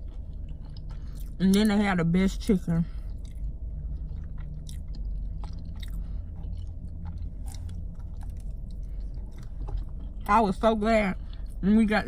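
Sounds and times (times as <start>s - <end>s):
person chewing food: 0.0s - 1.7s, 3.0s - 10.3s, 11.2s - 11.6s
steady low hum: 0.0s - 12.0s.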